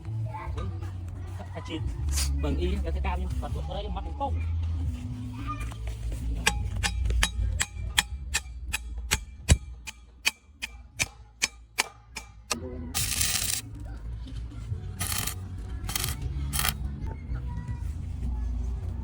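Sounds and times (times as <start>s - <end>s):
hammer striking steel: 6.4s - 13.6s.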